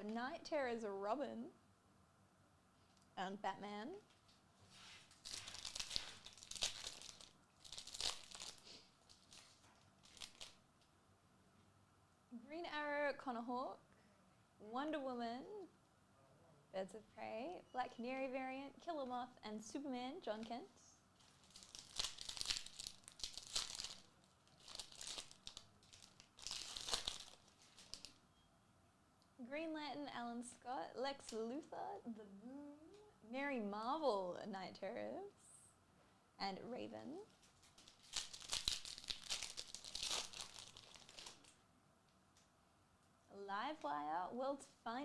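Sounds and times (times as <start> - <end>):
card pack wrapper tearing and crinkling: 5.2 - 10.6, 21.2 - 28.2, 37.6 - 41.6.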